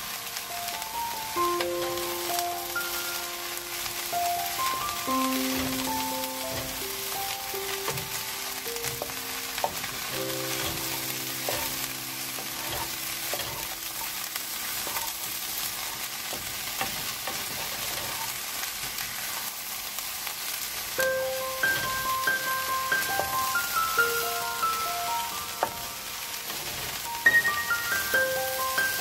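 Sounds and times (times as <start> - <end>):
vegetables sizzling in a frying pan: 0.0 - 29.0
wooden spatula scraping a pan: 7.7 - 19.5, 26.3 - 29.0.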